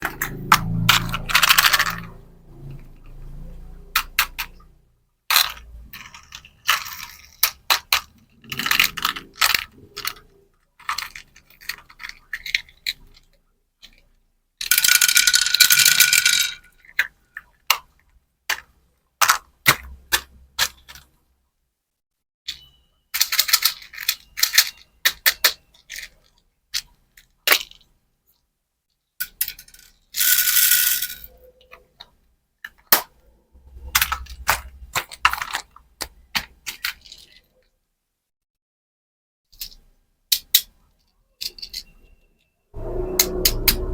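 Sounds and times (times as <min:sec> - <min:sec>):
small hard pieces clicking: 0:05.3 - 0:17.9, 0:22.5 - 0:27.9, 0:33.9 - 0:37.4, 0:39.6 - 0:41.9.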